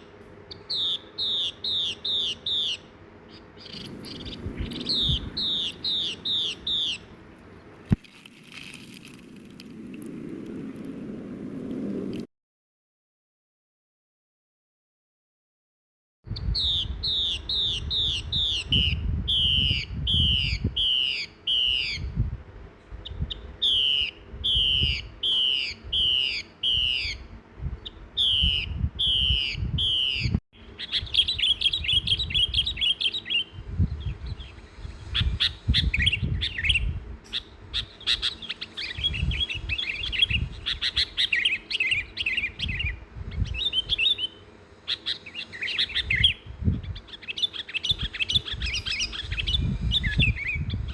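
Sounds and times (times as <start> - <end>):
bird twittering: 0.0 - 8.0, 16.3 - 22.2, 22.8 - 50.9
bird whistling downslurred note: 23.1 - 27.3.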